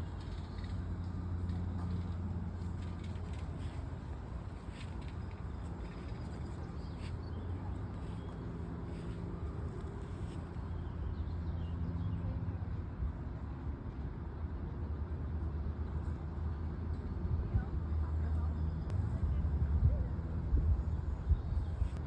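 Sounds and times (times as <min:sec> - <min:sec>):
faint engine hum: 0:00.0 - 0:22.0
road traffic rumble: 0:00.0 - 0:22.0.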